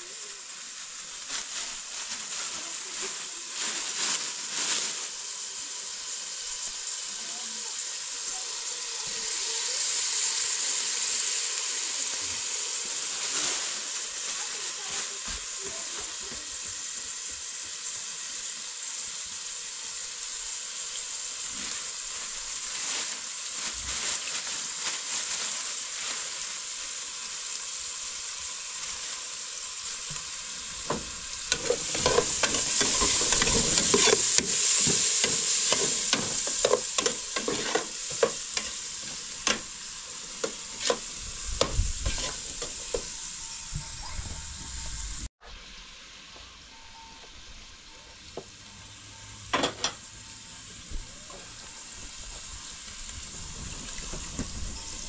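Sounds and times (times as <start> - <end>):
food frying and sizzling: 0.0 - 55.0
metal ladle scraping a pot: 30.8 - 43.2.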